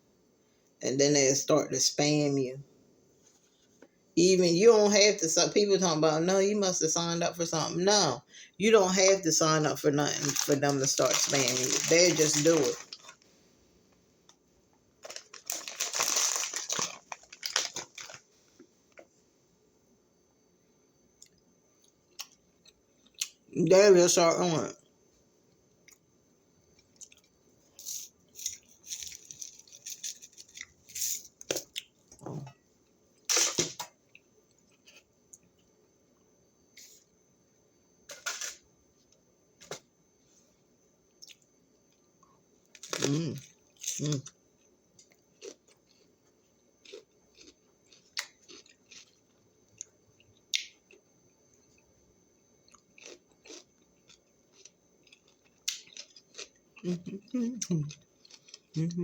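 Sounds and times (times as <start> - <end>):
person chewing crunchy snack: 10.1 - 13.2, 15.0 - 18.2, 26.8 - 31.9, 45.0 - 46.1, 46.8 - 51.0, 52.6 - 59.0
vegetable crunching bites: 46.8 - 49.2, 53.0 - 56.5.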